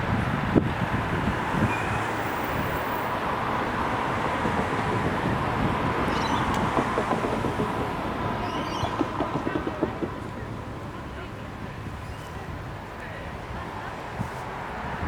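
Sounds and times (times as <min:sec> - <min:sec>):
wind on microphone: 0:00.0 - 0:10.1
passing vehicles rumble: 0:00.0 - 0:15.0.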